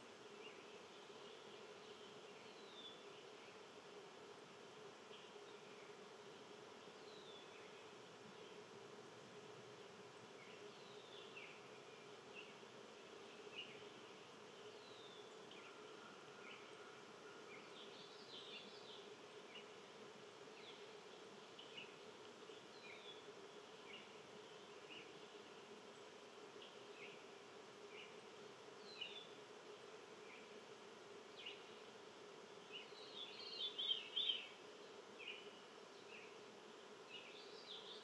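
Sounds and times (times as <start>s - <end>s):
small birds chirping: 32.6s - 36.4s.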